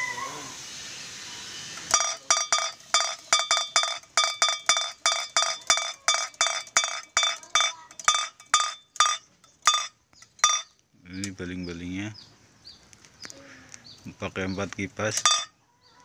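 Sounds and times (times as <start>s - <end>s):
bamboo kite clapper knocking: 1.9s - 10.7s.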